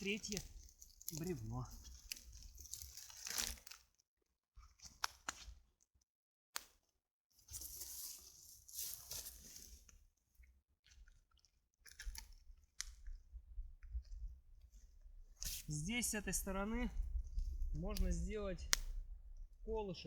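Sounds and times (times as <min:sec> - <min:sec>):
bark and wood crunching: 0:00.0 - 0:04.0.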